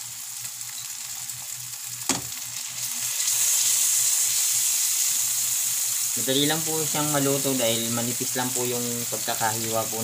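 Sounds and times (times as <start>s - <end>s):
fish frying in butter: 0.0s - 10.0s.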